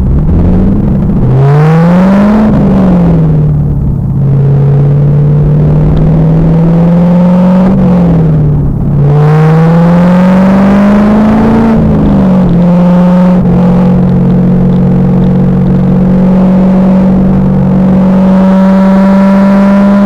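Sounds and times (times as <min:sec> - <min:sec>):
car engine revving under load: 0:00.0 - 0:20.0.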